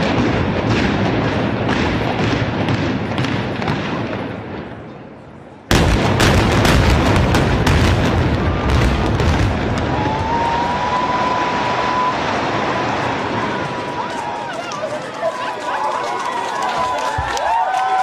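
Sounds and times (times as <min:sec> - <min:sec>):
explosive charges cracking: 0:05.7 - 0:14.0.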